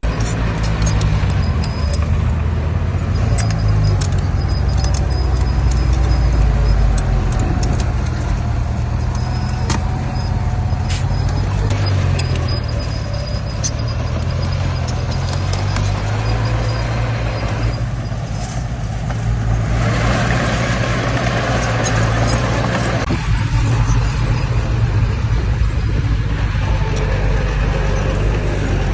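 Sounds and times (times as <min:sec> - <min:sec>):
metallic clinks and clanks: 0:00.0 - 0:02.2
heavy machinery diesel engine: 0:00.0 - 0:28.9.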